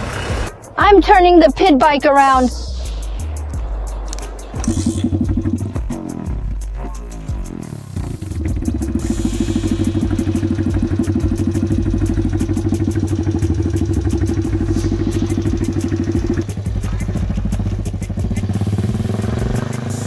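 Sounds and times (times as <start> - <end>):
pit bike engine running: 8.0 - 20.0.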